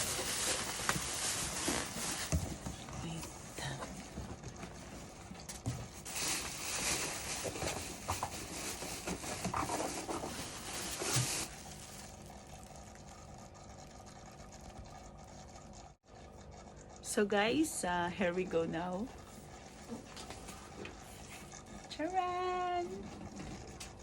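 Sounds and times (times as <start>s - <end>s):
packaging rustling and scraping: 0.0s - 3.2s, 4.8s - 12.2s.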